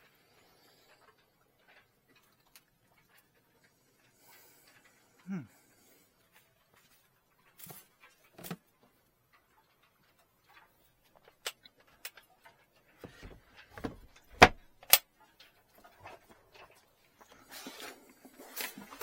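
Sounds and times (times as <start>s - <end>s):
clicks and knocks of handling: 6.4s - 19.0s.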